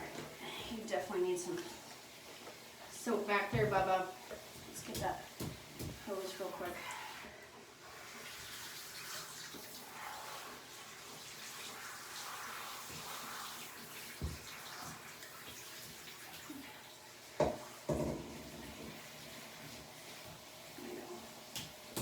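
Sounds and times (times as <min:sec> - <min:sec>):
water hissing from hose: 0:04.9 - 0:17.0
dull knock: 0:17.4 - 0:18.3.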